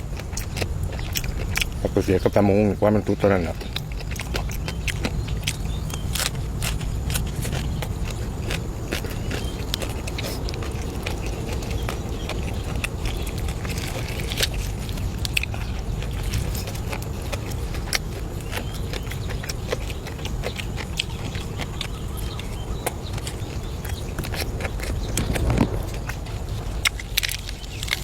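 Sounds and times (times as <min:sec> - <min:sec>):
person chewing and crunching: 0:00.0 - 0:28.0
low rumble: 0:21.4 - 0:28.0.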